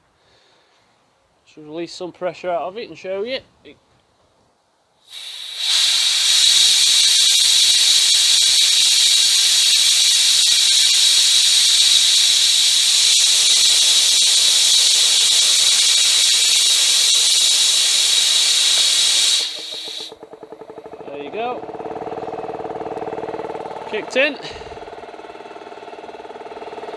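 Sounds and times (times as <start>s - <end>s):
compressed air hissing: 5.1s - 20.2s.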